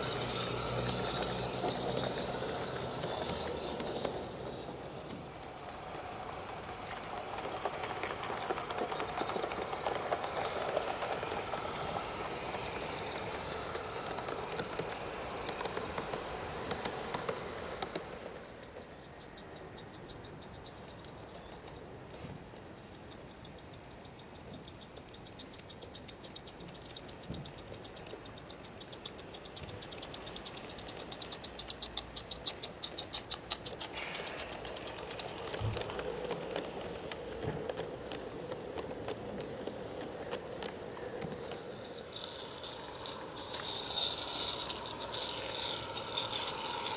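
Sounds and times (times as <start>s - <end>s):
steam locomotive hissing and rumbling: 0.0s - 19.7s, 30.2s - 46.9s
train wheels clicking: 0.0s - 46.9s.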